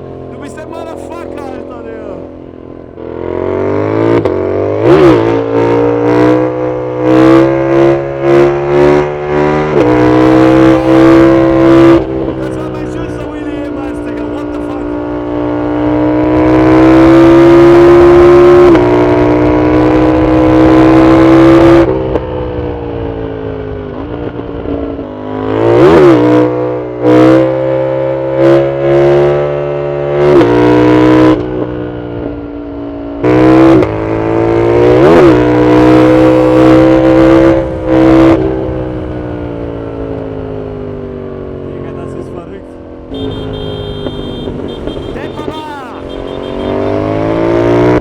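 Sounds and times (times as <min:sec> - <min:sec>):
motorcycle engine accelerating: 0:00.0 - 0:48.0
motorcycle throttle bursts: 0:09.6 - 0:12.6, 0:33.6 - 0:41.0, 0:43.0 - 0:48.0.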